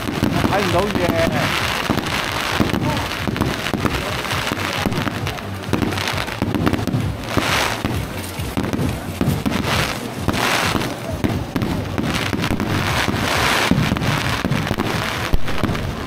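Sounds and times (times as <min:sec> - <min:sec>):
fireworks bangs: 0:00.0 - 0:16.0
fireworks sparkling: 0:00.0 - 0:16.0.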